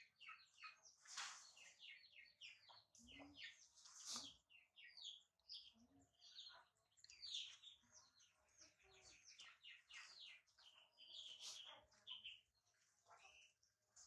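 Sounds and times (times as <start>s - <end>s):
birds chirping faintly: 0.0s - 14.0s.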